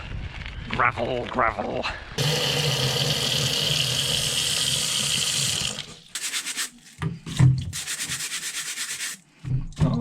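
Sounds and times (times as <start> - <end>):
brush scrubbing fruit: 6.1 - 7.0, 7.7 - 9.3.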